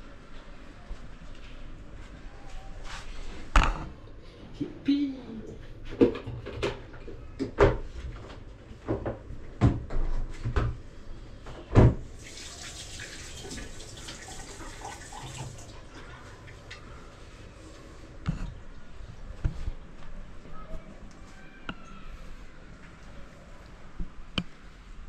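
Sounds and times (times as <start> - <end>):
kitchen tap running: 12.1 - 16.7.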